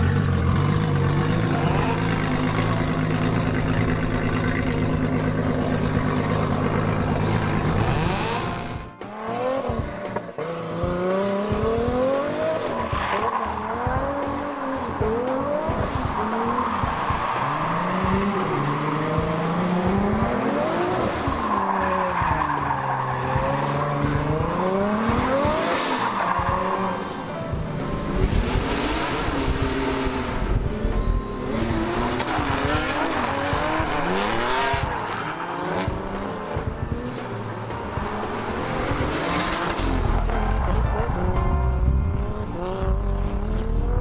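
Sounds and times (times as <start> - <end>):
car engine revving: 0.0 - 44.0.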